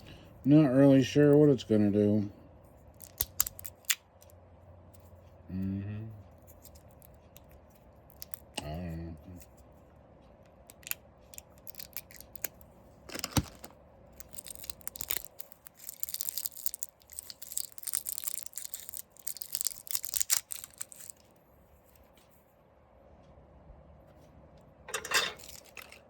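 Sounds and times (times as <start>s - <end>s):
plastic wrapping crinkling: 10.8s - 21.2s, 25.4s - 26.0s.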